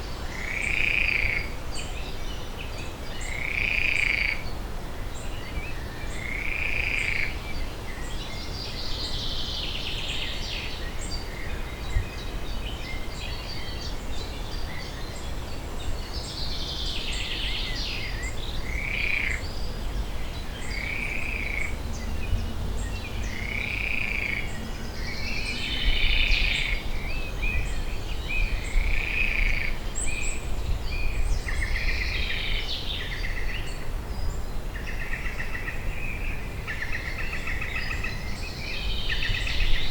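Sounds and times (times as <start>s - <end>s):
steady low rumble: 19.6s - 29.0s.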